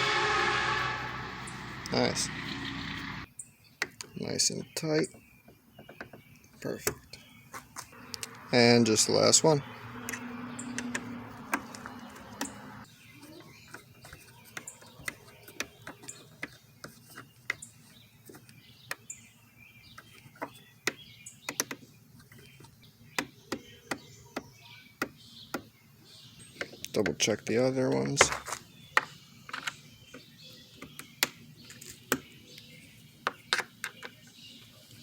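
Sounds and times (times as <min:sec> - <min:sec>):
steady hum: 0:00.0 - 0:03.3.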